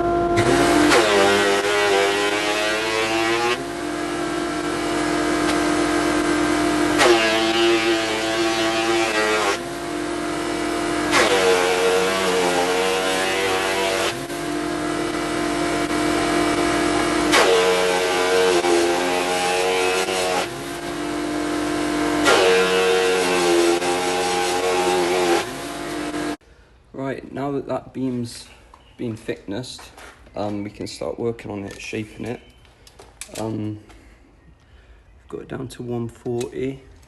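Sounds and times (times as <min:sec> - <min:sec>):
thicknessing machine planing wood: 0:00.0 - 0:26.4
machine running hum: 0:00.0 - 0:26.7.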